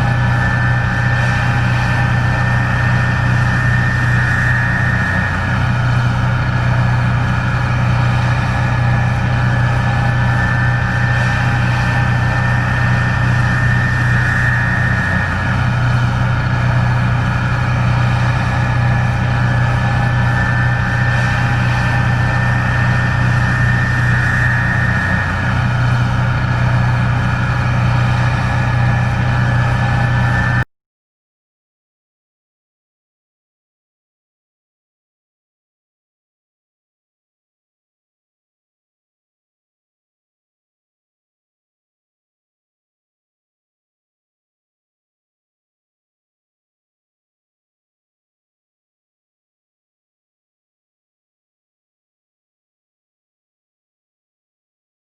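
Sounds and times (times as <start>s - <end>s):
combine harvester engine drone: 0.0s - 30.7s
high machine whine: 0.0s - 30.7s.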